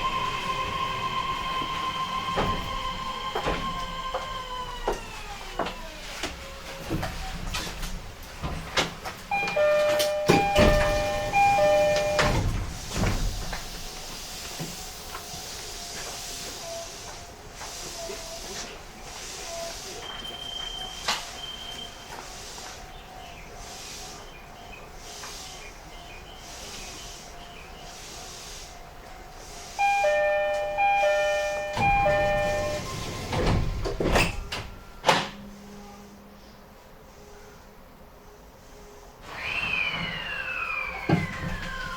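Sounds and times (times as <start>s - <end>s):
sliding doors: 0.0s - 35.8s, 39.2s - 41.9s
train car background noise: 0.0s - 41.9s
two-note train door chime: 9.3s - 13.3s, 29.8s - 36.3s.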